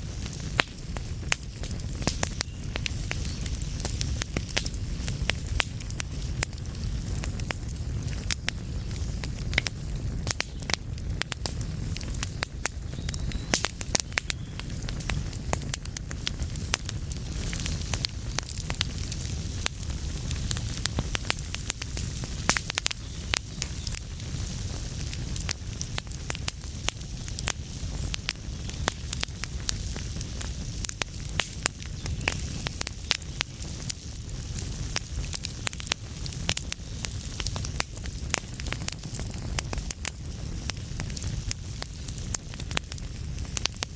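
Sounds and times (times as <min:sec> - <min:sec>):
low rumble of flames: 0:00.0 - 0:43.9
wood fire crackling and popping: 0:00.0 - 0:43.9.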